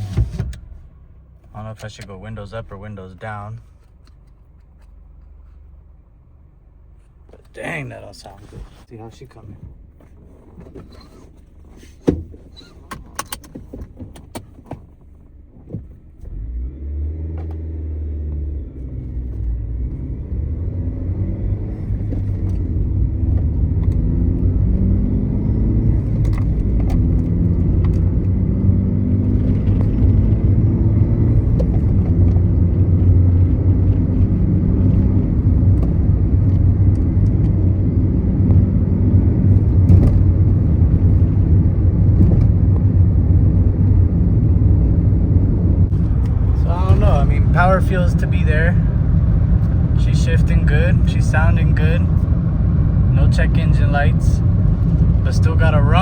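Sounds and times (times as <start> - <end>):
car engine accelerating: 15.2 - 56.0.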